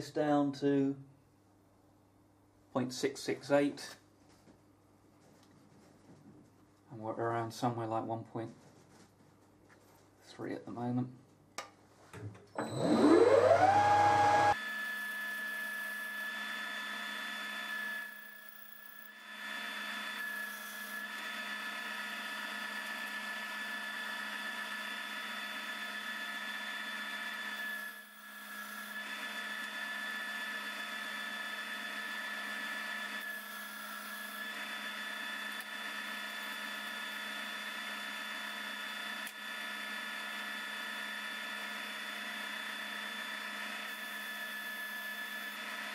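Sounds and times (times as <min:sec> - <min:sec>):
metal lathe whining: 0:12.6 - 0:45.9.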